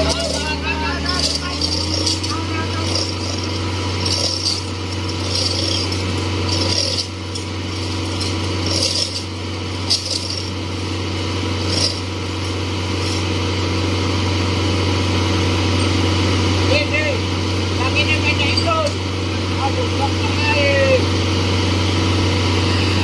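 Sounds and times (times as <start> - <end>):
heavy machinery engine hum: 0.0 - 23.0.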